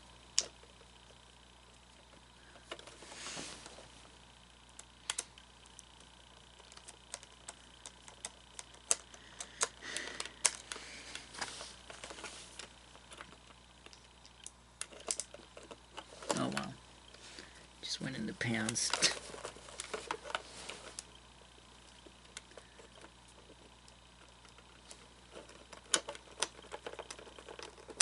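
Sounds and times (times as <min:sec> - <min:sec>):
rustling: 0:10.1 - 0:14.0, 0:18.3 - 0:21.3.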